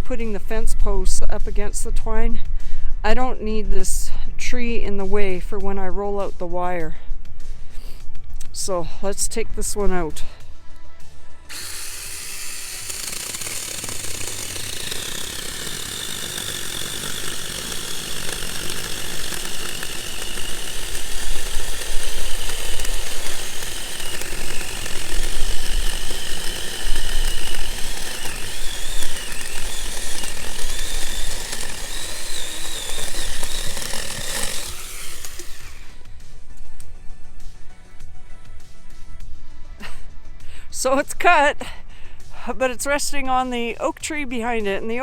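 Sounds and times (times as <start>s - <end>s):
chainsaw cutting wood: 11.4s - 36.9s.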